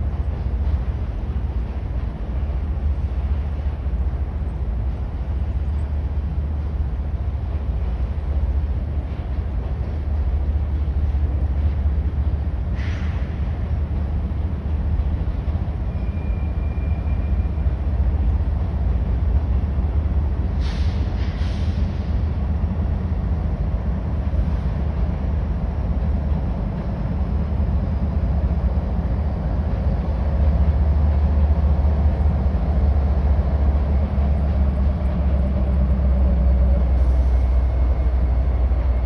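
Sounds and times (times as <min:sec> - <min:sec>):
freight train rumbling past: 0:00.0 - 0:39.0
high wheel squeals: 0:15.9 - 0:17.7.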